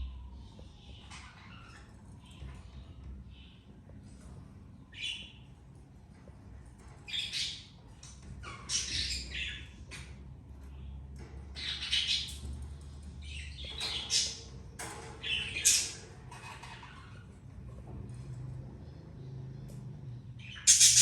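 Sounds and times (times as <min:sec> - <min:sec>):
budgerigars squawking: 0:20.5 - 0:21.0.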